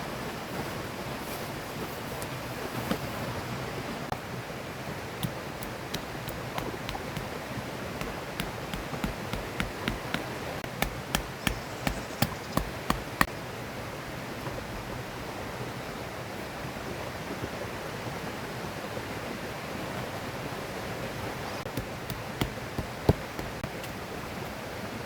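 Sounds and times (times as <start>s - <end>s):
river flowing: 3.5s - 14.2s
sharp knocks: 5.2s - 7.4s, 8.0s - 13.3s, 21.7s - 23.6s.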